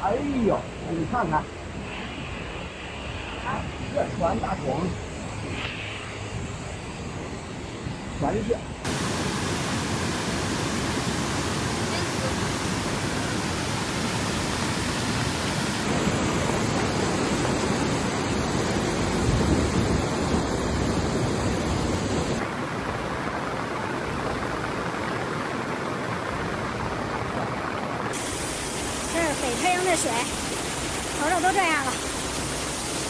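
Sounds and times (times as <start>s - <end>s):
floodwater rushing: 8.8s - 19.1s, 22.4s - 33.0s.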